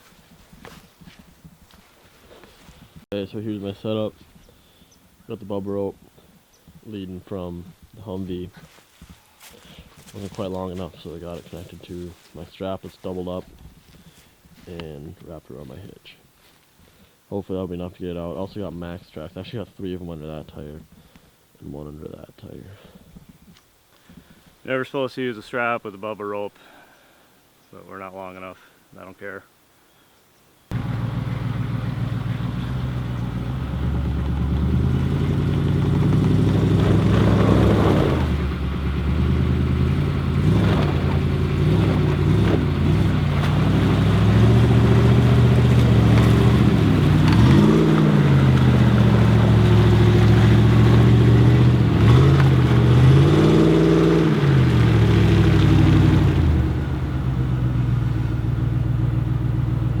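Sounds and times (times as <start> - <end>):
truck engines revving under load: 30.7 - 60.0.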